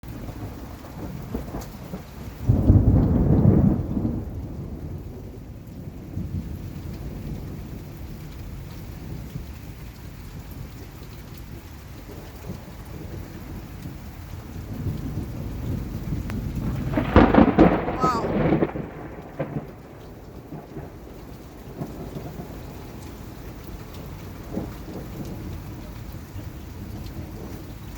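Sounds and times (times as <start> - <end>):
steady rain: 0.0 - 27.9
rolling thunder: 0.1 - 9.4, 12.0 - 27.8.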